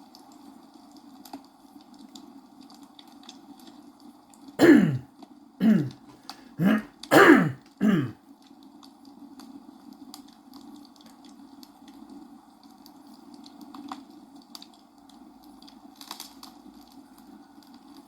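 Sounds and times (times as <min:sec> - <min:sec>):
person coughing: 0:04.6 - 0:05.0, 0:05.6 - 0:06.0, 0:06.6 - 0:08.1.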